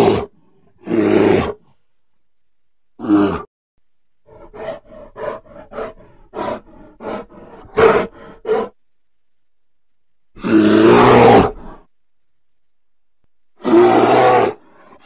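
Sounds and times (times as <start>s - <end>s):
bear roaring: 0.0s - 1.6s, 3.0s - 3.5s, 4.2s - 8.8s, 10.4s - 11.9s, 13.6s - 15.0s
bear grunting: 0.0s - 1.7s, 3.0s - 3.5s, 4.2s - 8.8s.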